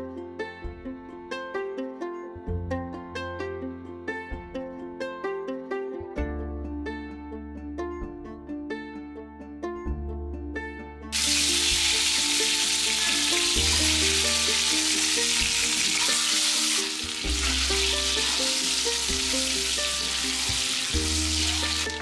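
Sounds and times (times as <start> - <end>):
food sizzling in hot oil: 11.2 - 22.0
spatula stirring in pan: 11.2 - 22.0.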